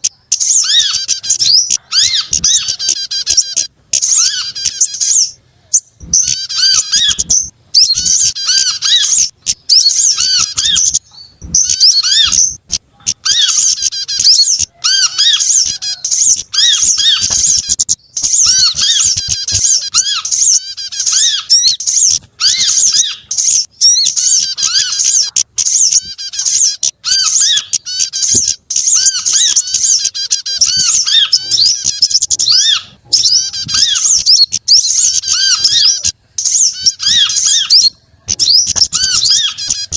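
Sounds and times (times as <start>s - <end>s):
songbirds twittering and chirping: 0.0s - 39.9s.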